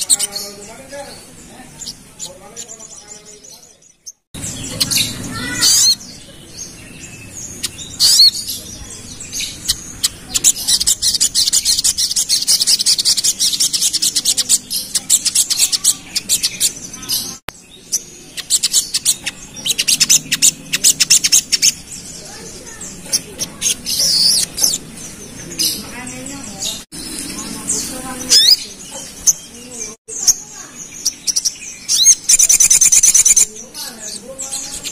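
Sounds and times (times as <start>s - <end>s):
bird fast high ticking song: 4.0s - 17.1s, 17.9s - 22.1s, 26.7s - 34.9s.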